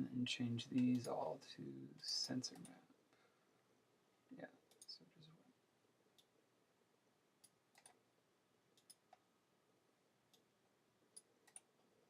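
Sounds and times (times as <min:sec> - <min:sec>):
computer mouse clicks: 0:04.7 - 0:05.0, 0:07.4 - 0:08.0, 0:08.8 - 0:09.3, 0:11.1 - 0:11.7.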